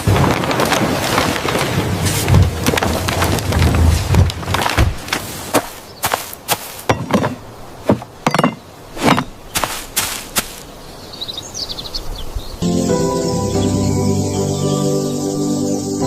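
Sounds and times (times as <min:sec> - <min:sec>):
sharp knocks: 0:04.1 - 0:10.6
faint bird chirps: 0:10.7 - 0:16.0.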